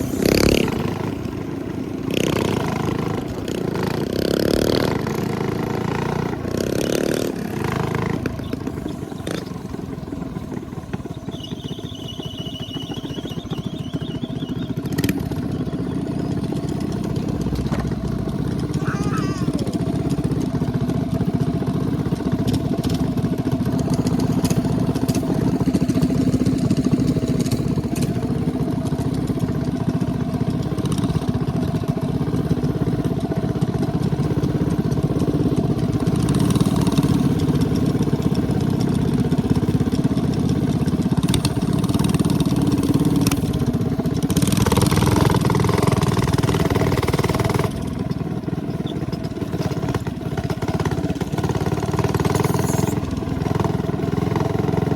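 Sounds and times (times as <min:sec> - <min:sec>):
minibike engine running: 0:00.0 - 0:54.9.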